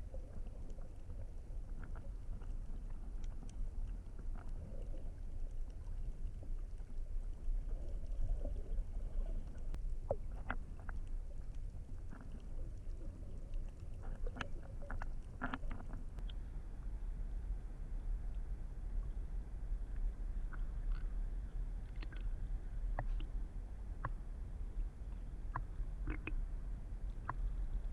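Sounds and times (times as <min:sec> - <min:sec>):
muffled underwater rumble: 0:00.0 - 0:27.9
small clicks and pops: 0:00.1 - 0:16.4, 0:21.8 - 0:23.3, 0:25.1 - 0:27.6.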